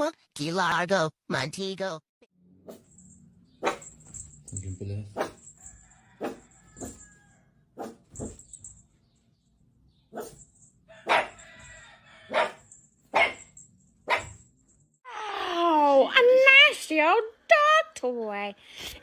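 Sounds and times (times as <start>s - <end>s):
dog barking: 3.6s - 4.0s, 6.1s - 7.0s, 7.8s - 8.4s, 10.1s - 10.4s, 11.0s - 11.6s, 12.3s - 14.4s.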